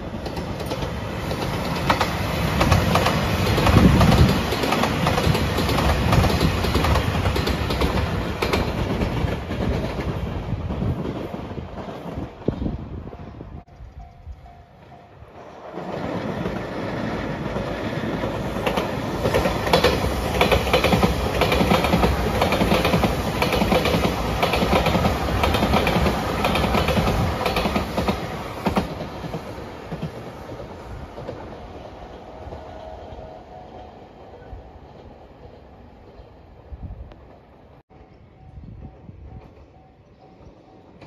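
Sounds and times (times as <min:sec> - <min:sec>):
train wheels clattering over rail joints: 0:15.8 - 0:31.6.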